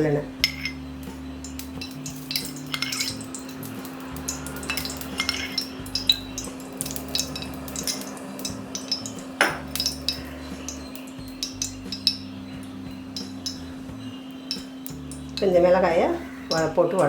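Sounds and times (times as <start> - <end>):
steady low hum: 0.0 - 17.0
metal spoon clinking against pan: 0.4 - 0.8, 1.4 - 16.7.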